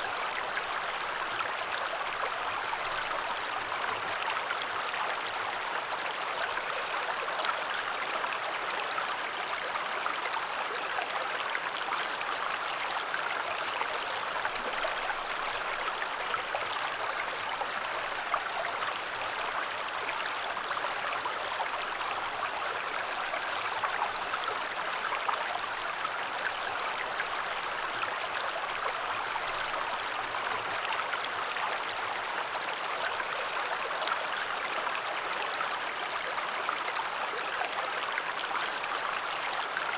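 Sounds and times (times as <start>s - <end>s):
river water rushing: 9.1s - 20.0s, 37.9s - 39.9s.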